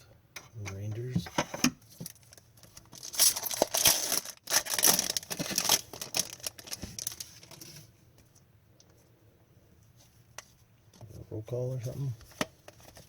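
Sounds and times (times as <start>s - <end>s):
foil wrapper tearing and crinkling: 2.2s - 7.6s.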